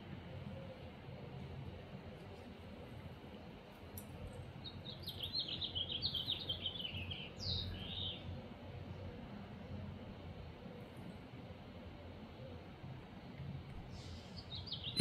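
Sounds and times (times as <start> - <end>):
songbird singing: 3.8 - 9.3, 13.8 - 15.0.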